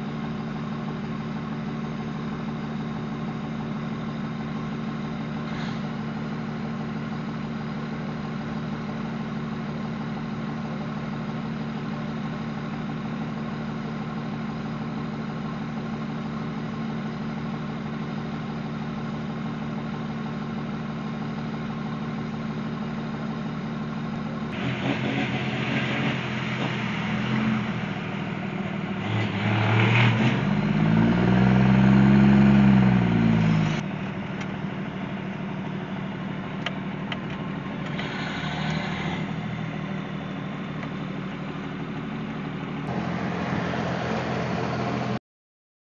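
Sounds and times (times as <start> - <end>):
vehicle engine drone on highway: 0.0 - 45.2
engine revving: 24.5 - 33.8, 37.8 - 39.8, 42.8 - 45.2.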